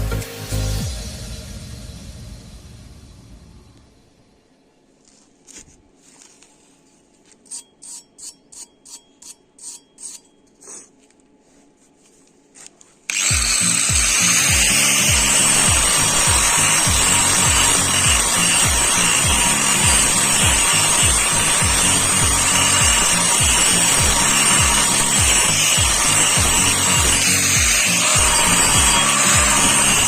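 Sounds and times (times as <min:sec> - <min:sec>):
music with thumping beat: 0:13.3 - 0:30.0.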